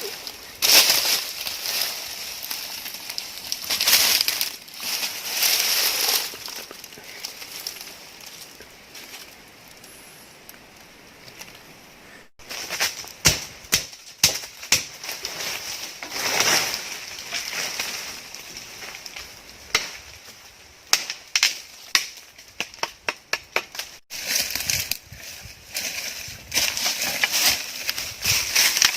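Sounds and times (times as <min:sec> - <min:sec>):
soft steady hiss: 0:00.0 - 0:14.6
rustle: 0:00.0 - 0:28.9
sharp knocks and snaps: 0:12.8 - 0:15.0, 0:20.9 - 0:25.0.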